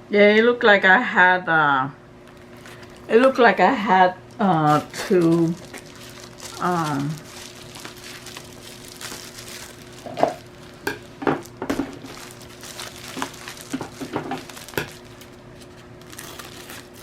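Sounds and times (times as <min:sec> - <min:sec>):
faint steady hum: 0:00.0 - 0:17.0
packaging rustling and crinkling: 0:04.6 - 0:17.0.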